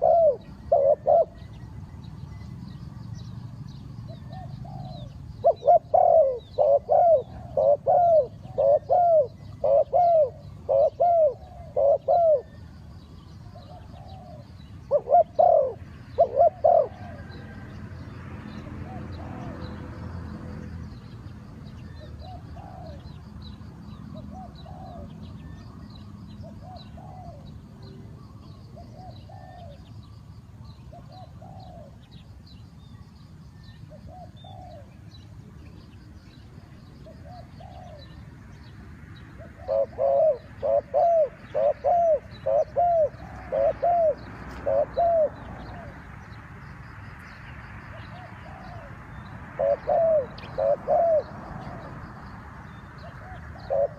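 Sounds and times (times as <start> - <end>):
doves cooing: 0.0 - 1.9, 4.0 - 17.8, 21.9 - 23.2, 24.1 - 25.8, 26.4 - 29.9, 30.9 - 32.3, 33.9 - 35.0, 36.7 - 38.2, 39.4 - 46.1, 48.1 - 52.0, 53.0 - 53.9
small birds chirping: 0.0 - 53.9.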